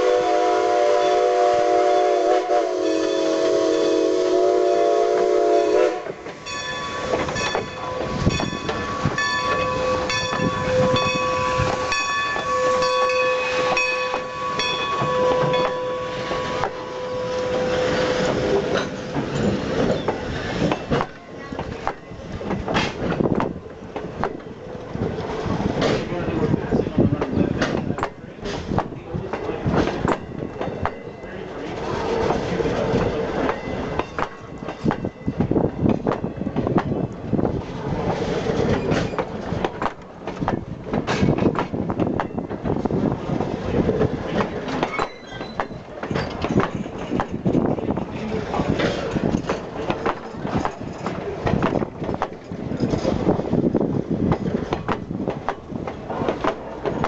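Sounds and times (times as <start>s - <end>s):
train rumble: 0.0s - 57.0s
wheels clacking over rail joints: 5.9s - 57.0s
faint high wheel squeals: 44.9s - 46.5s.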